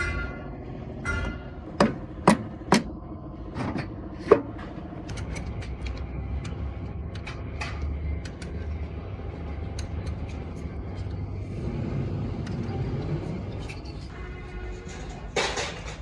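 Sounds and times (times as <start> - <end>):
low steady hum: 0.0 - 16.0
metal tools knocking: 1.1 - 3.0.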